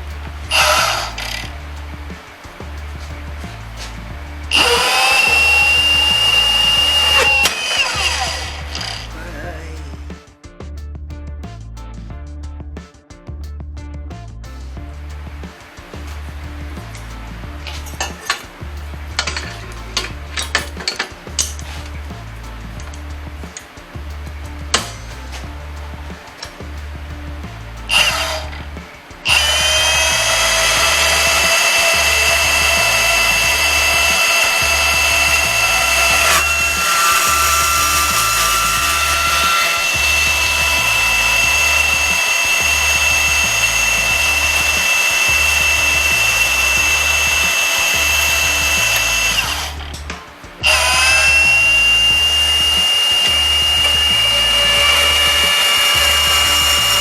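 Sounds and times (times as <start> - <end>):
background music with steady beat: 0.0 - 57.0
power tool motor whining: 0.4 - 1.5, 4.5 - 9.3, 27.9 - 50.0, 50.6 - 57.0.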